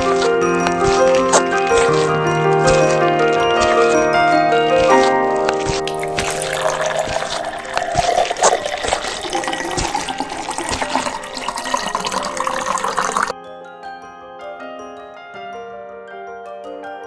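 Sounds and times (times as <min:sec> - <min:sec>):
water running: 0:00.0 - 0:13.3
background music: 0:00.0 - 0:17.0.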